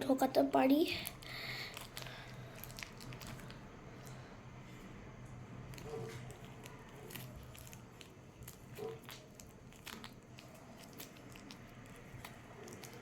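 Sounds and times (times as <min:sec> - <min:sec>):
squishy toy crinkling and clicks: 0:01.0 - 0:03.7, 0:05.7 - 0:13.0.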